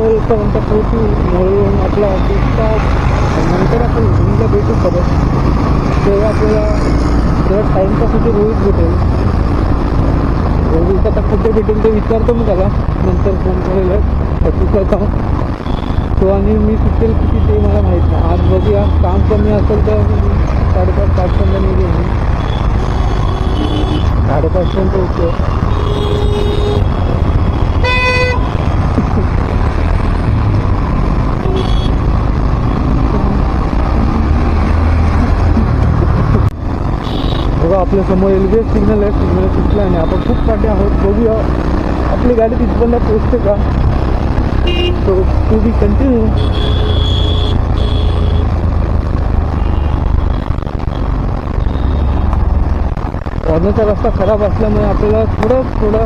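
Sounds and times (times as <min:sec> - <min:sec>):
road traffic rumble: 0:00.0 - 0:56.0
wind: 0:00.0 - 0:56.0
vehicle horn honking: 0:22.5 - 0:24.1, 0:25.7 - 0:26.9, 0:27.8 - 0:28.5, 0:31.4 - 0:32.0, 0:37.0 - 0:37.5, 0:44.7 - 0:45.0, 0:46.4 - 0:48.4.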